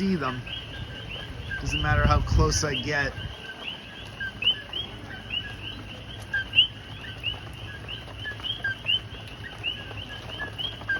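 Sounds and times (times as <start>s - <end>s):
chorus of frogs calling: 0.0s - 10.9s.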